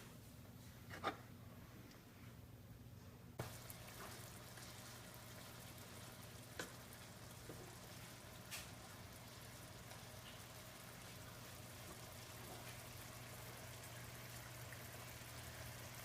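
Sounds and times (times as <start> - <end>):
chicken sizzling in a pan: 3.4 - 16.0.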